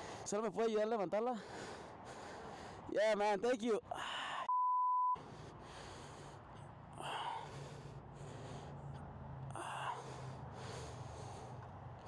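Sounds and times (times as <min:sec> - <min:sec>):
person breathing hard: 0:00.0 - 0:00.3, 0:01.4 - 0:02.9, 0:03.9 - 0:04.5, 0:05.2 - 0:12.0.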